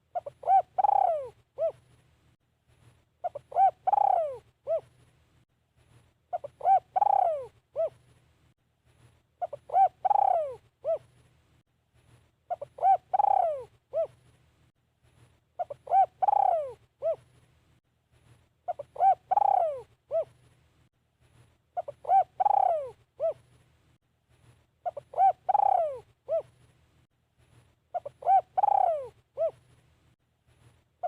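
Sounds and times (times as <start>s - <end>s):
dove cooing: 0.0s - 1.8s, 3.2s - 4.9s, 6.3s - 8.0s, 9.4s - 11.1s, 12.5s - 14.2s, 15.6s - 17.3s, 18.7s - 20.4s, 21.8s - 23.4s, 24.8s - 26.6s, 27.9s - 29.6s.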